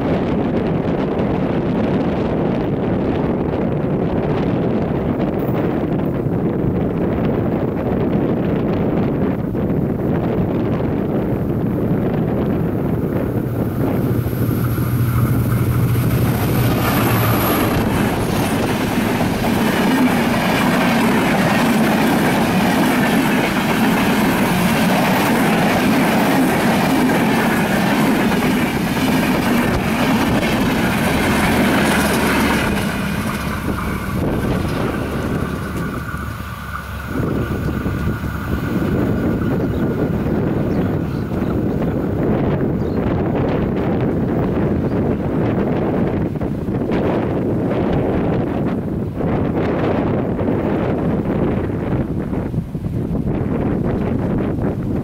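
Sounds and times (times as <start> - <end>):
low engine hum: 10.9 - 42.8
train wheels clattering over rails: 12.3 - 42.7.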